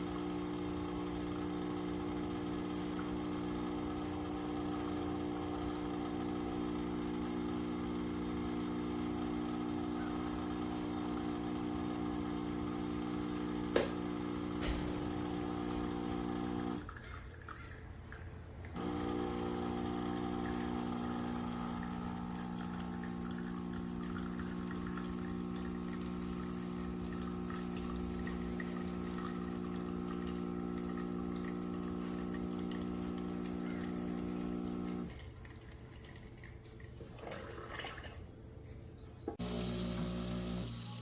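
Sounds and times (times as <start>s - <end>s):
espresso machine pump humming: 0.0s - 16.9s, 18.7s - 35.2s, 39.3s - 41.0s
water dripping and trickling: 34.2s - 38.2s.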